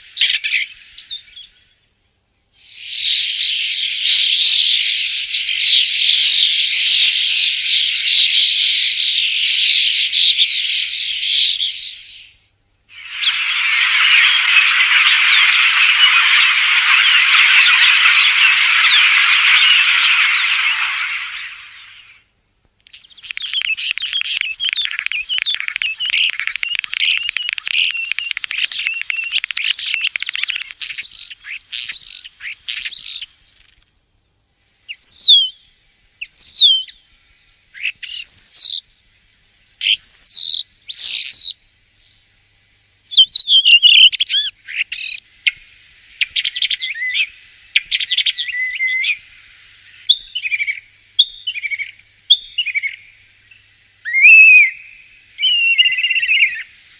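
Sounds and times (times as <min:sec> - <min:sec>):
bird whistles sliding down: 0:12.9 - 0:22.2, 0:22.9 - 0:33.2
starling chattering warbles: 0:12.9 - 0:22.2, 0:22.9 - 0:33.2.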